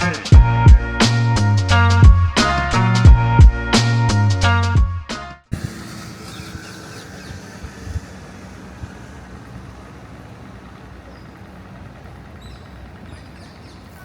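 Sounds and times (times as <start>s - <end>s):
road traffic rumble: 0.0s - 4.5s, 5.5s - 14.0s.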